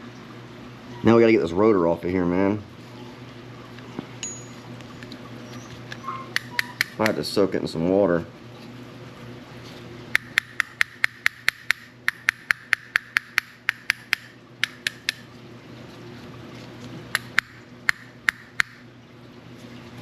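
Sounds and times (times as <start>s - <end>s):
tool tapping metal reel: 4.2s - 4.6s, 10.1s - 15.2s.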